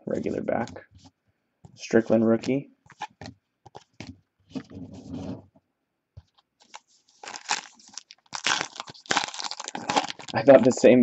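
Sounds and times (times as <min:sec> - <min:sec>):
wrapper crinkling and tearing: 0:06.6 - 0:10.8.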